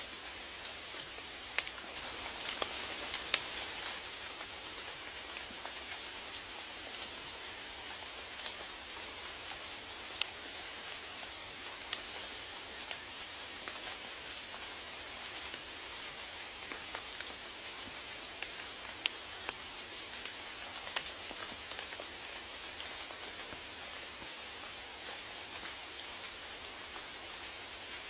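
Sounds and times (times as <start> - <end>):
rain hissing: 0.0 - 28.0
raindrops ticking: 0.9 - 28.0.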